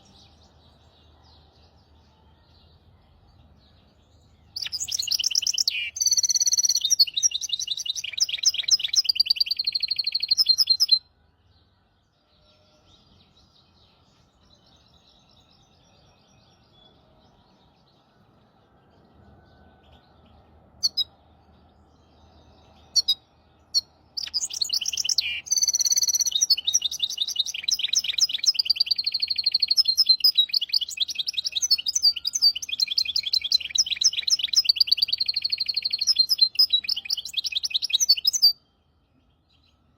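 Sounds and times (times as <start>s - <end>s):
finch trilling song: 4.4s - 11.1s, 20.8s - 21.2s, 22.7s - 38.8s
short bird chirps: 4.6s - 11.0s, 22.7s - 38.6s.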